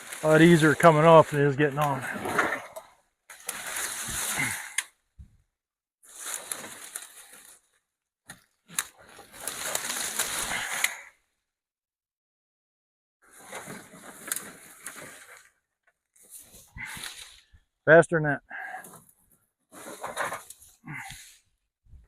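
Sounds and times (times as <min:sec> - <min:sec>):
branches rustling and crackling: 0:00.0 - 0:05.0, 0:06.0 - 0:11.2, 0:13.3 - 0:17.7
branches snapping: 0:06.1 - 0:07.6, 0:08.2 - 0:11.1.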